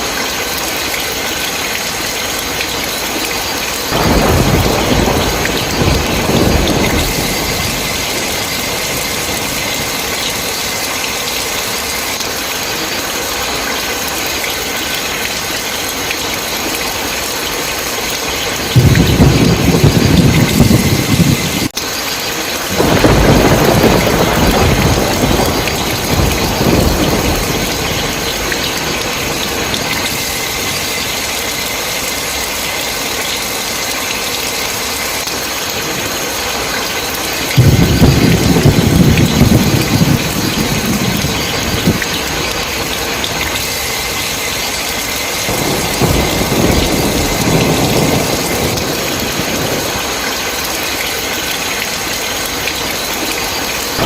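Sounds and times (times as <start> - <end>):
heavy rain: 0.0 - 54.0
rolling thunder: 3.6 - 11.7, 18.4 - 21.7, 22.5 - 31.3, 37.5 - 52.2.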